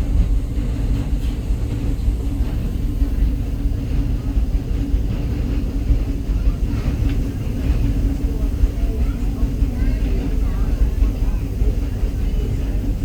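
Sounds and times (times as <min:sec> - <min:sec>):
train rolling along track: 0:00.0 - 0:13.0.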